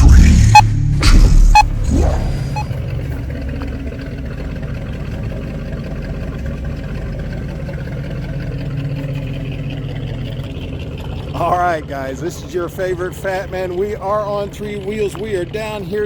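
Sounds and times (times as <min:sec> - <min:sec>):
car engine and road noise: 0:00.0 - 0:16.0
short beeps: 0:00.5 - 0:00.7, 0:01.5 - 0:01.8, 0:02.5 - 0:02.7.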